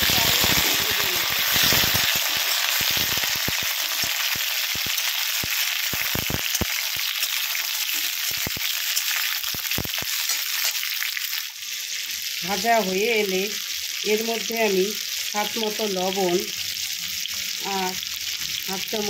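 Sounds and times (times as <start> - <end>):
oil spitting crackles: 0.0 - 7.2
vegetables sizzling in hot oil: 0.0 - 19.0.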